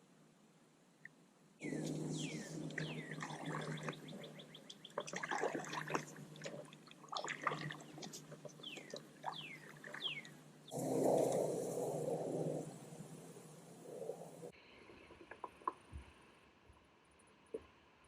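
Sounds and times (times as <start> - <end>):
birds chirping: 1.6 - 14.5.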